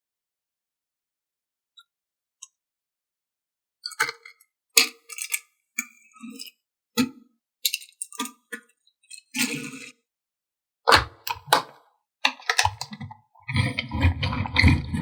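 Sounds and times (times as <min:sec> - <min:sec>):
plastic scrape: 0:12.3 - 0:15.0.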